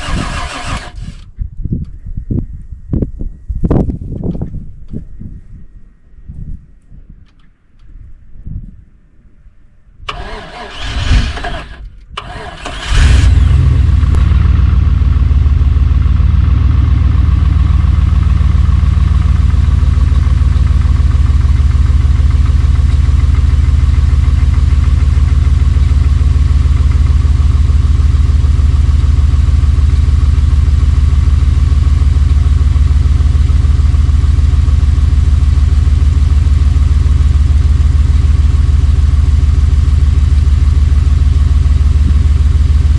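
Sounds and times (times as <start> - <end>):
engine cranking and idling: 0.0 - 1.3, 10.1 - 42.9.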